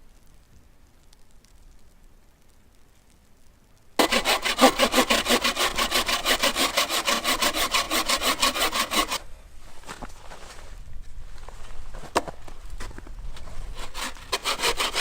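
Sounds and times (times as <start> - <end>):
hand saw cutting wood: 4.0 - 9.2, 13.7 - 15.0.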